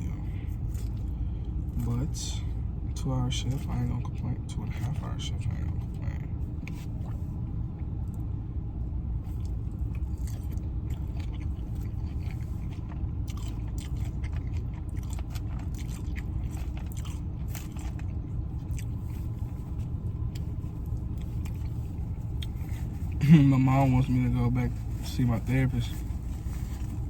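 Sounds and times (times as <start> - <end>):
chewing and crunching food: 0.0 - 27.0
low rumble: 0.0 - 27.0.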